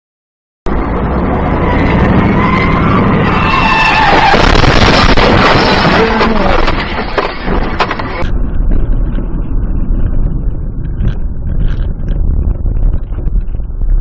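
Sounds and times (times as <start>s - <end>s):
road noise rush: 0.7s - 14.0s
car tyres skidding and squealing: 1.1s - 8.2s.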